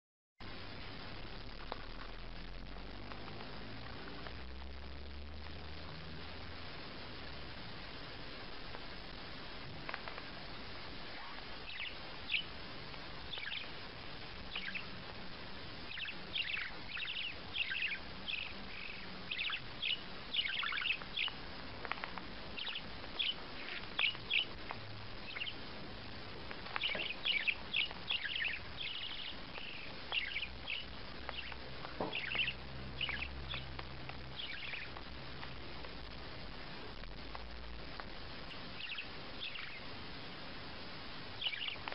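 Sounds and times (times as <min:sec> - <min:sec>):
background hiss: 0:00.4 - 0:41.9
small bird chirping: 0:08.5 - 0:40.2, 0:41.3 - 0:41.9.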